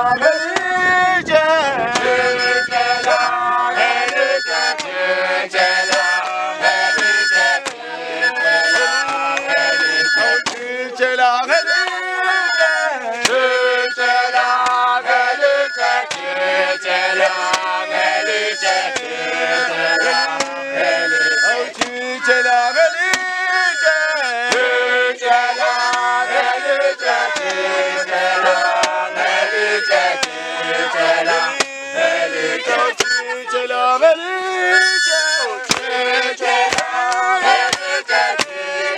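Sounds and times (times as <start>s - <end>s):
group singing and chanting: 0.0s - 38.9s
sharp percussive hits: 11.4s - 32.4s, 35.5s - 38.6s.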